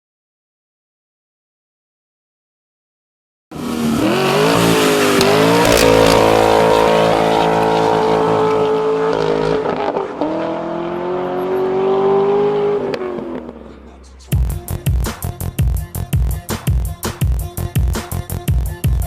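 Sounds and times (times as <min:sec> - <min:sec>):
car engine revving: 0:03.6 - 0:14.3.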